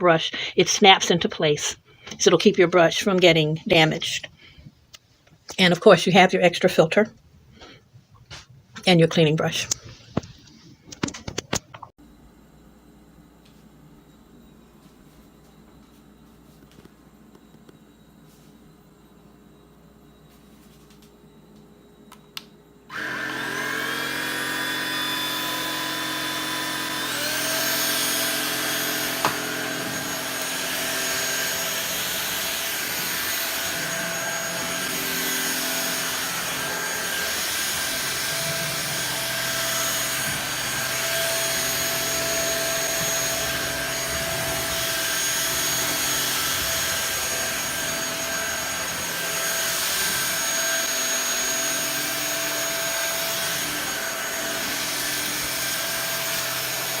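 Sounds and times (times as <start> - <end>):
vacuum motor whine: 12.0 - 57.0.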